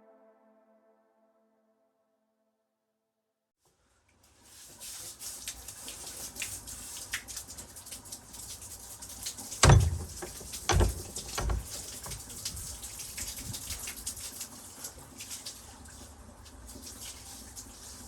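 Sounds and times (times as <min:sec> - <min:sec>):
heavy thumps: 0:09.6 - 0:12.4.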